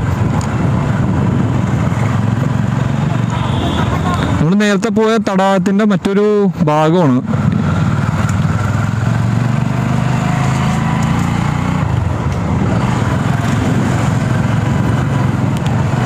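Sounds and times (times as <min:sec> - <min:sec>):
road and air noise: 0:00.0 - 0:16.0
motorcycle engine running: 0:07.2 - 0:16.0.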